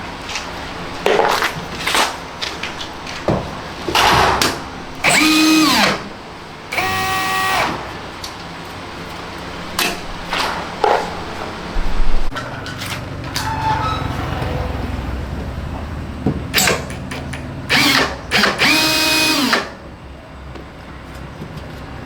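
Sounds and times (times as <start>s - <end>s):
power drill whining: 5.0s - 8.0s, 17.7s - 19.8s.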